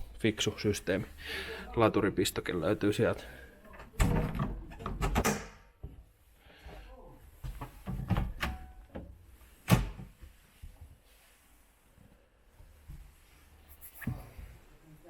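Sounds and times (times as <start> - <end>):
storage hatch knocks and clatter: 3.9 - 5.6.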